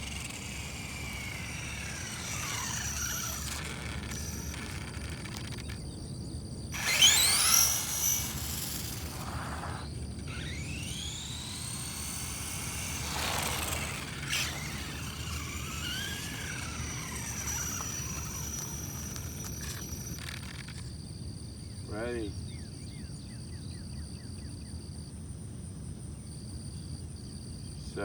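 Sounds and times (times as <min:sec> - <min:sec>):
electric motor whining: 0:00.0 - 0:06.0, 0:06.6 - 0:20.9.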